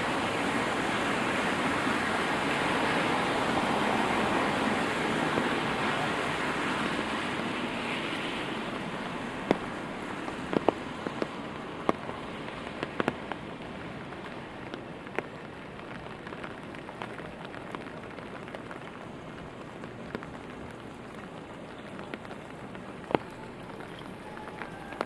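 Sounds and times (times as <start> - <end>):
steady rain hiss: 0.0 - 25.0
raindrops tapping on umbrella: 4.2 - 5.8, 7.0 - 25.0.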